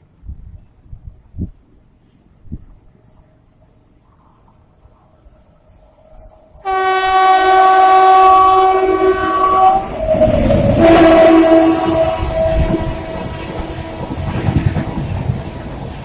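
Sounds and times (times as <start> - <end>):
train passing rumble: 0.1 - 16.0
locomotive horn blowing: 6.6 - 15.2.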